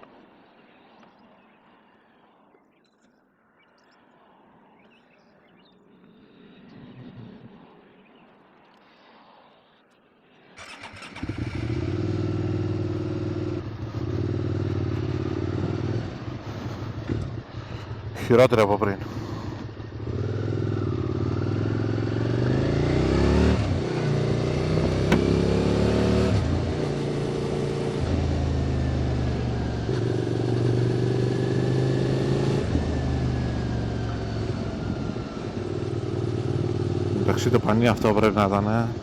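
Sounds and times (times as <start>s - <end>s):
road noise: 4.2s - 39.0s
motorcycle engine accelerating: 10.6s - 39.0s.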